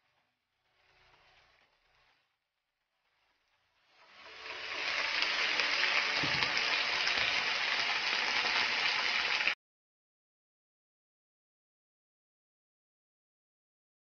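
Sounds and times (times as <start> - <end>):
food sizzling in oil: 3.8 - 9.6.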